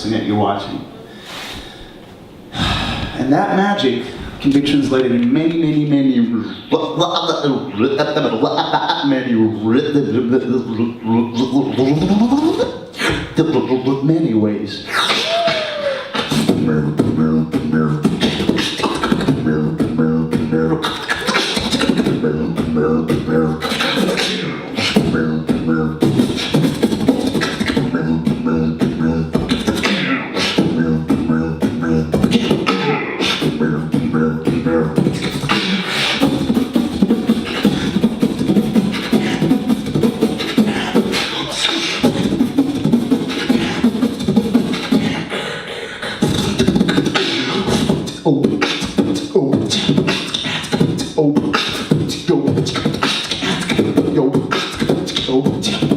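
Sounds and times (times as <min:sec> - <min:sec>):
beatboxing into a microphone: 0:00.0 - 0:55.9
hummed pitched notes: 0:16.3 - 0:45.2.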